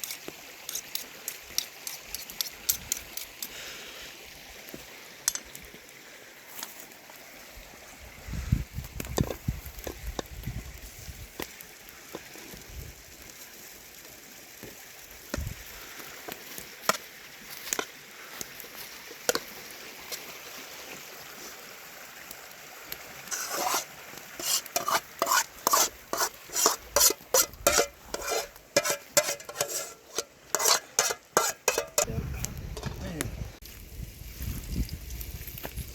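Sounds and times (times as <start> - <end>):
spoon scraping a pot: 0.0 - 3.5, 23.3 - 32.1.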